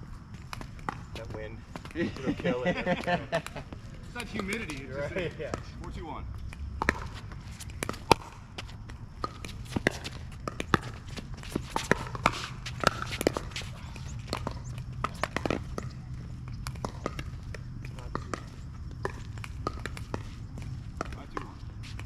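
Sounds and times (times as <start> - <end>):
footsteps on court: 0.2 - 22.0
ball bouncing on court: 0.5 - 2.0, 3.0 - 5.8, 6.5 - 22.0
paddles popping ball: 6.5 - 22.0.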